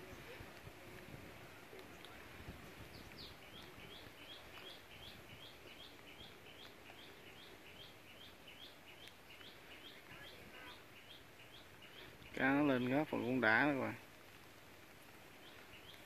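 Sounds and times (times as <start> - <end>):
low background hiss: 0.0 - 16.0
bird chirping: 1.8 - 13.8, 15.3 - 16.0.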